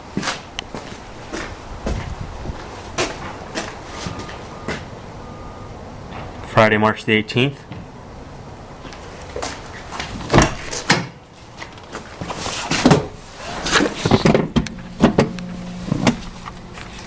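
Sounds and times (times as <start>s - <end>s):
low steady hum: 13.3s - 17.0s.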